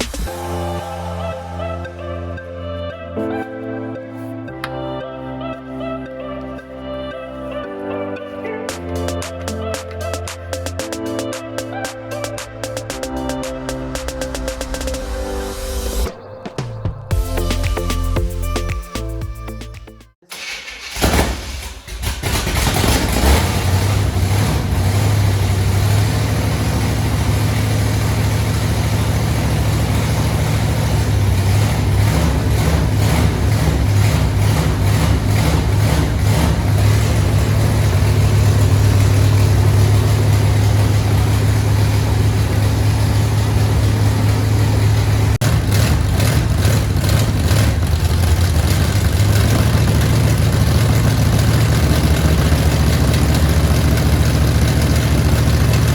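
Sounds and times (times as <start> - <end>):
truck engine running: 22.0 - 55.9.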